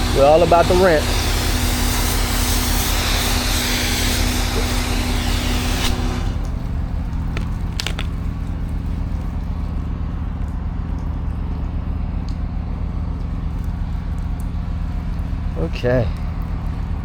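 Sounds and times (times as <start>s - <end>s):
pressure washer engine running: 0.0s - 7.9s.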